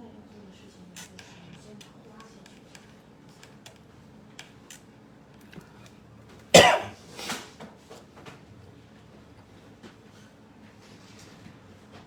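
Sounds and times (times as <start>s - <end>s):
person coughing: 6.6s - 7.0s.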